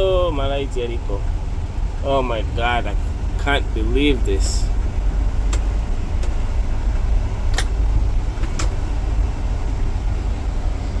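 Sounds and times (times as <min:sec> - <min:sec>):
car road rumble: 0:00.0 - 0:11.0
sharp clicks: 0:07.5 - 0:07.8.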